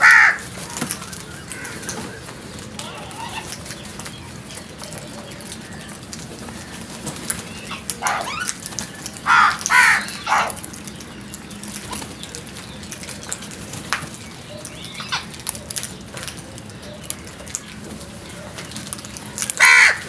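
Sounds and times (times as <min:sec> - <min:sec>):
crows cawing: 0:00.0 - 0:03.6, 0:07.7 - 0:10.7, 0:19.3 - 0:20.0.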